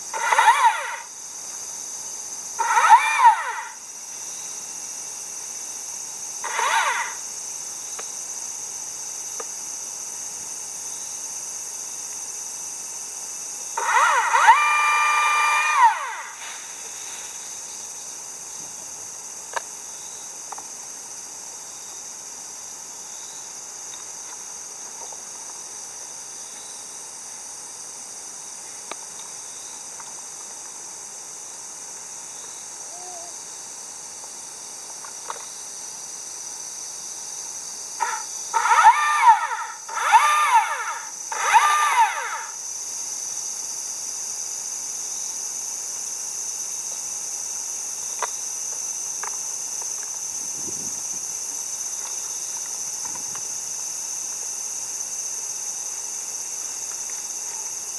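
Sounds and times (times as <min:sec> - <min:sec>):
high-pitched insect chorus: 0:00.0 - 0:57.9
animal calls rising and falling: 0:00.2 - 0:01.1, 0:02.6 - 0:03.8, 0:06.4 - 0:07.2, 0:13.8 - 0:16.6, 0:38.0 - 0:42.6.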